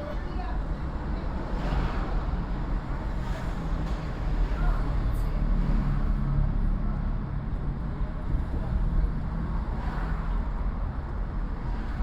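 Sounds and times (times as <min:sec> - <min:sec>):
car engine and road noise: 0:00.0 - 0:12.0
surrounding traffic: 0:00.0 - 0:12.0.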